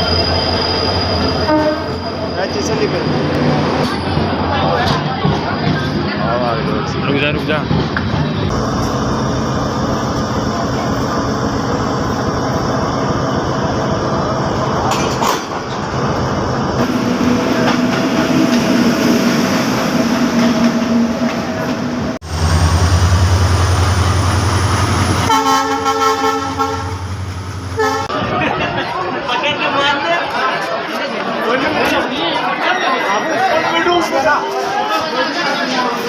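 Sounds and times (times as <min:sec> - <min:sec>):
train rumbling on track: 0:00.0 - 0:30.0
train horn chord: 0:25.3 - 0:27.1.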